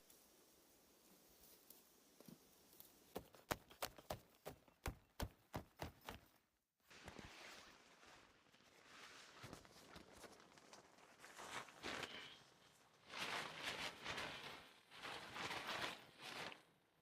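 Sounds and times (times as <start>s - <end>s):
soft steady rustle: 6.8s - 17.0s.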